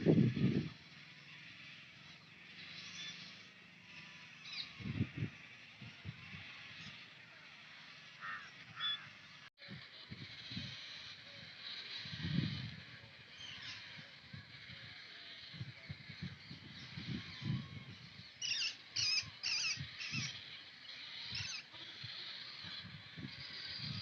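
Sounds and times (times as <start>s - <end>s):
waterbirds calling: 0.0s - 24.0s
loud short bird calls: 0.9s - 9.5s, 13.3s - 24.0s.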